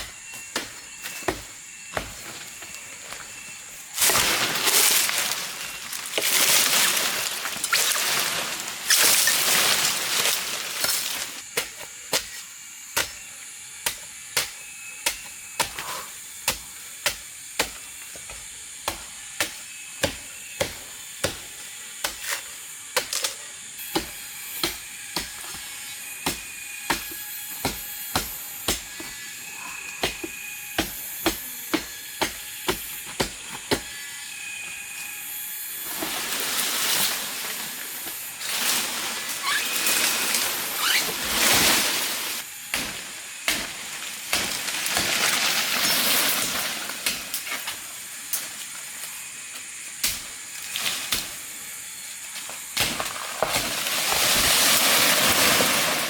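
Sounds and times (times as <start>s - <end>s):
sharp chopping strokes: 0.0s - 2.5s, 3.4s - 48.8s
crashing through vegetation: 4.0s - 11.4s, 35.9s - 47.7s, 52.8s - 56.0s.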